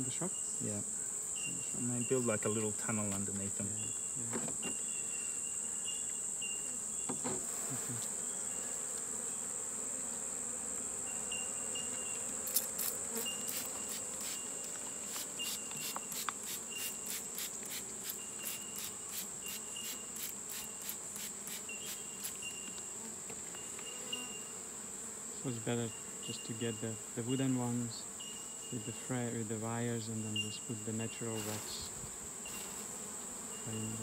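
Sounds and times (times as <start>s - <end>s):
high-pitched insect drone: 0.0s - 9.4s, 11.0s - 24.6s, 33.5s - 34.0s
honeybees humming: 0.0s - 34.0s.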